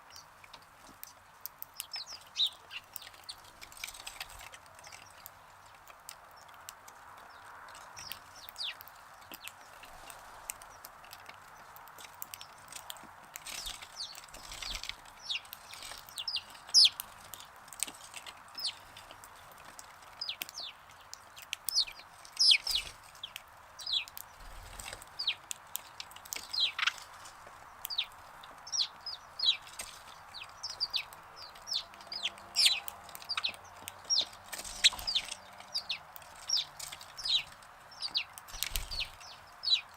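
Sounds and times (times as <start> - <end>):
faint steady background noise: 0.0 - 39.9
sparrows chirping: 0.0 - 39.9.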